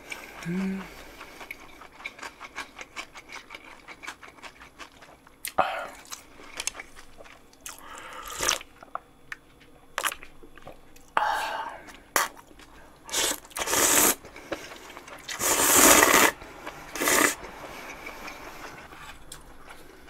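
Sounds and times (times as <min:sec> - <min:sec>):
chewing noodles with mouth clicks: 0:00.0 - 0:11.1
slurping noodles and broth: 0:13.1 - 0:18.9.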